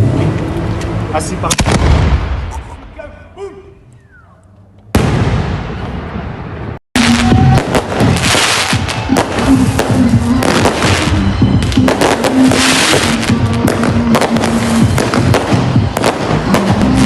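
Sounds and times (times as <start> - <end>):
firecrackers and fireworks popping: 1.4 - 2.5, 7.0 - 17.0.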